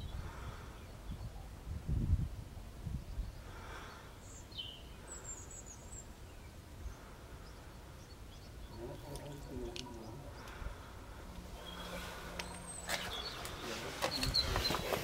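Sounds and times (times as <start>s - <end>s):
steady low rumble: 6.6s - 14.0s
high bird chirps: 11.5s - 15.0s.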